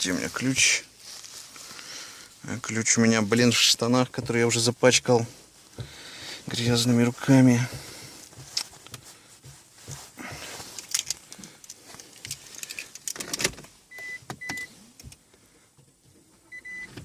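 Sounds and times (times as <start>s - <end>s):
clothing rustling: 0.0s - 13.9s
keys jangling: 10.7s - 13.5s.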